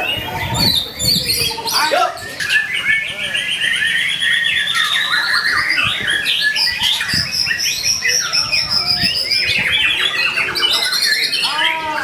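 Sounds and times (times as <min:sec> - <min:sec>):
bird singing chirps and trills: 0:00.0 - 0:12.0.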